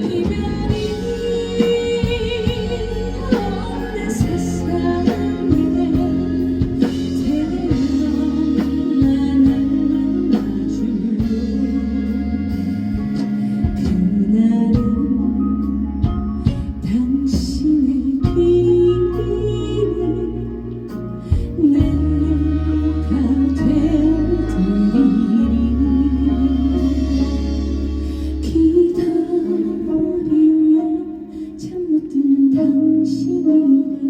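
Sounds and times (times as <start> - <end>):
woman singing long wavering notes: 0.0 - 12.9, 21.6 - 34.0
backing band with steady beat: 0.0 - 34.0.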